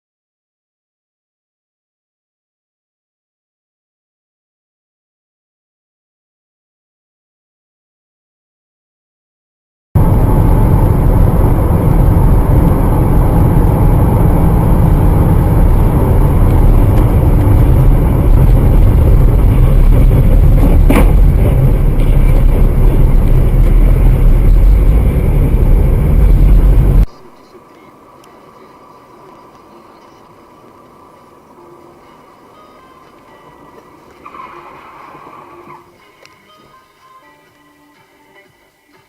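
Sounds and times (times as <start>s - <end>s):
road and wind noise: 10.0s - 39.0s.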